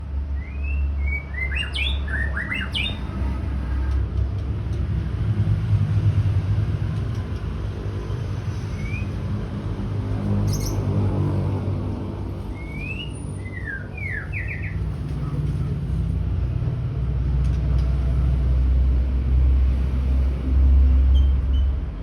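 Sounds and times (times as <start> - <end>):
bird whistling: 0.4 - 3.4, 8.7 - 9.3, 10.5 - 10.9, 12.5 - 14.9
steady low rumble: 2.7 - 22.0.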